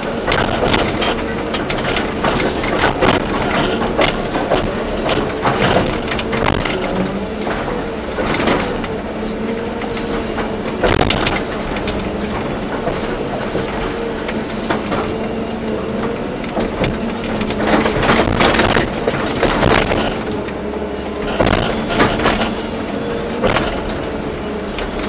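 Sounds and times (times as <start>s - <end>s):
bucket clanking and scraping soil: 0.0s - 25.0s
excavator engine humming: 0.0s - 25.0s.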